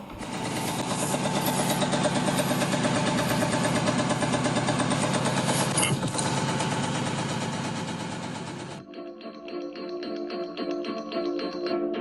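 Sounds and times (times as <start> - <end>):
machinery engine with pulsing rattle: 0.0 - 8.8.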